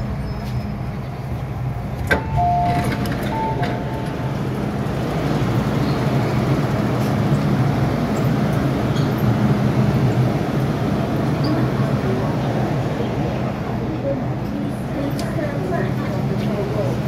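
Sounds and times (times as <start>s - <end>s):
electric train motors droning: 0.0s - 11.4s.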